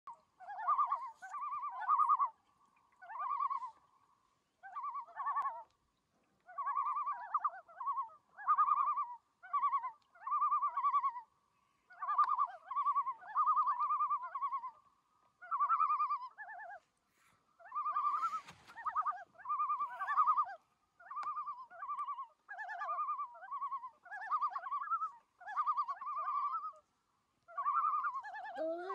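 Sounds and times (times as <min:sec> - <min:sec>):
loons calling: 0:00.1 - 0:05.7, 0:06.4 - 0:11.3, 0:11.9 - 0:16.8, 0:17.6 - 0:28.9.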